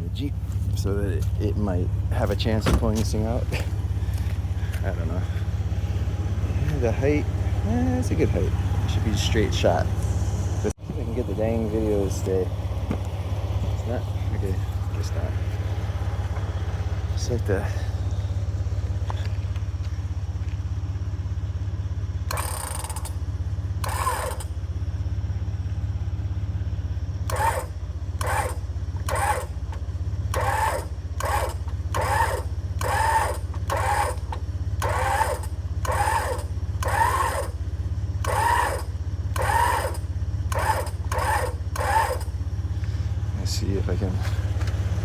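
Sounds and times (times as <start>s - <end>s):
car engine idling: 0.0s - 45.0s
winch running: 22.2s - 24.6s, 27.1s - 45.0s.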